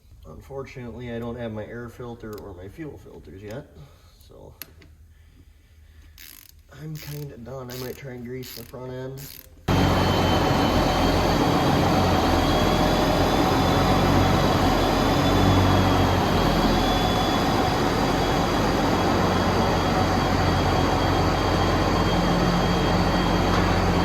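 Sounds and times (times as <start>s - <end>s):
tractor engine running: 9.7s - 24.0s.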